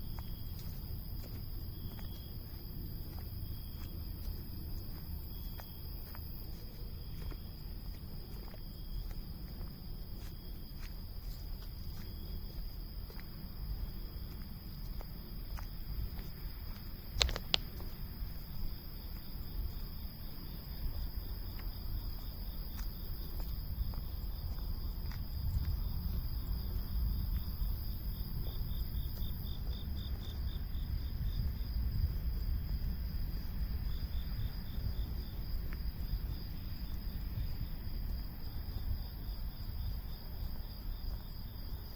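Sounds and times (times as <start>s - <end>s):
cicadas buzzing: 0.0s - 41.9s
rapidly pulsing insect call: 0.0s - 41.9s
sharp click: 17.1s - 17.7s.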